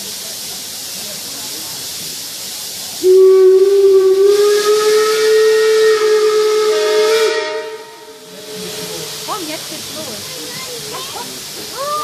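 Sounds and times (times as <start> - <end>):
hiss of escaping steam: 0.0 - 12.0
steam locomotive whistle: 3.0 - 9.4.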